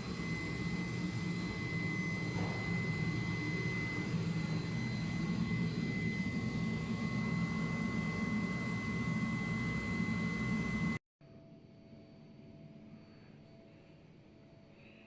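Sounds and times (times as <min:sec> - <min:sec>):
cutting machine noise: 0:00.0 - 0:11.0
high-pitched machine whine: 0:00.0 - 0:14.5.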